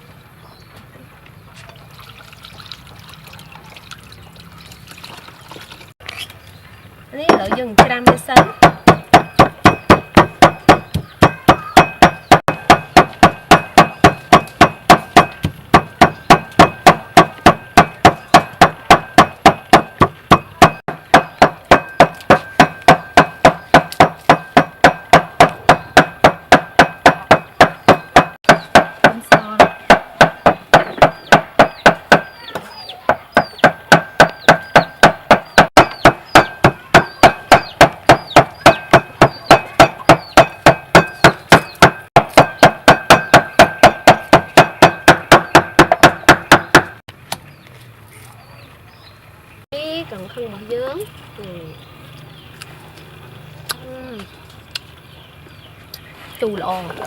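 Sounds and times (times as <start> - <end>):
food being pounded: 7.3 - 32.4, 33.1 - 47.0.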